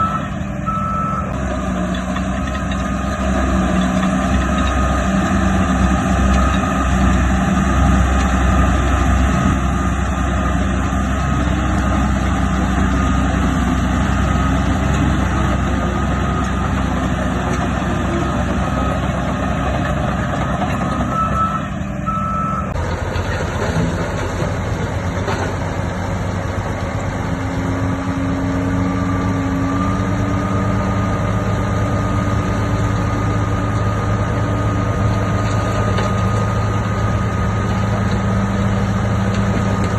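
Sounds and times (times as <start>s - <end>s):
reversing alarm beeping: 0.0s - 1.4s, 4.4s - 8.0s, 21.0s - 22.8s
diesel machinery engine: 0.0s - 39.9s.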